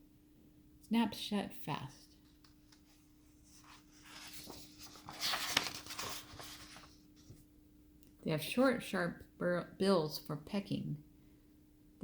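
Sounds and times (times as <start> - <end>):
book page turning: 2.0 - 7.5.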